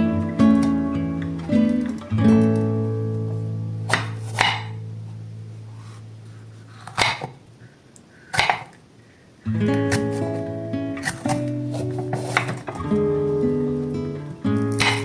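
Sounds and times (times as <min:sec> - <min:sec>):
acoustic guitar chord: 0:00.0 - 0:03.9, 0:12.7 - 0:14.8.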